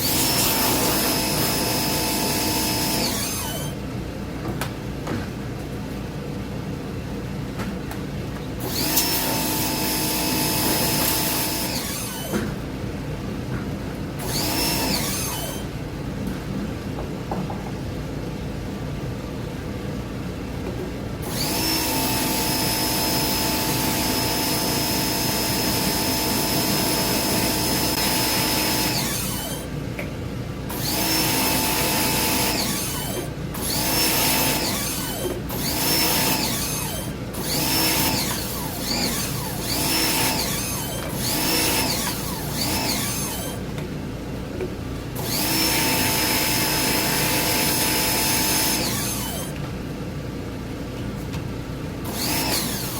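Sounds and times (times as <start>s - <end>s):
power tool motor whining: 0.0s - 3.8s, 8.6s - 12.4s, 14.2s - 15.6s, 21.2s - 29.7s, 30.7s - 43.6s, 45.2s - 49.6s, 52.0s - 52.9s.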